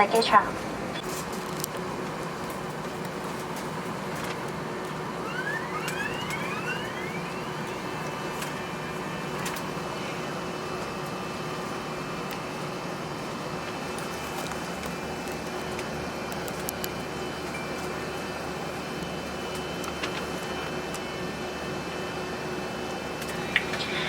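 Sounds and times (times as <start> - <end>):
aircraft cabin hum and hiss: 0.0 - 24.0
whine rising in pitch: 4.8 - 11.0.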